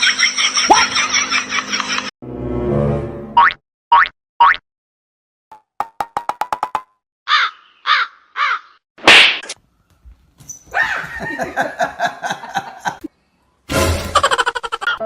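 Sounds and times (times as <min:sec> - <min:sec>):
loud smack or whoosh: 0:09.0 - 0:09.6.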